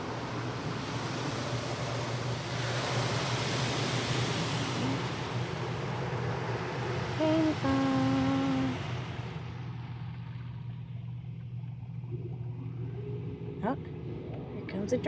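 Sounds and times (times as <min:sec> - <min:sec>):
steady low hum: 0:04.3 - 0:15.0.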